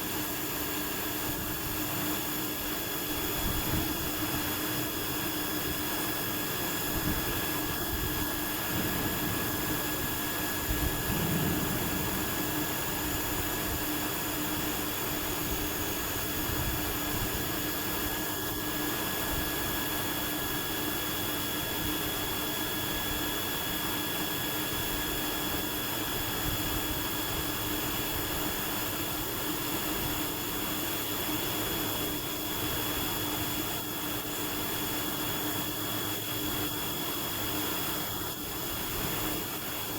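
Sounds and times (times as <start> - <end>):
cnc machine mechanical drone: 1.1 - 23.2
constant whining tones: 6.6 - 17.8.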